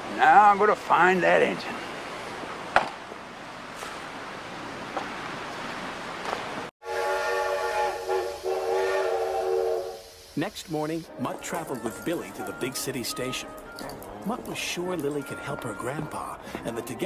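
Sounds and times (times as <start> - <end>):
train whistle chord: 6.8 - 10.3
wind-like hiss: 7.1 - 11.1.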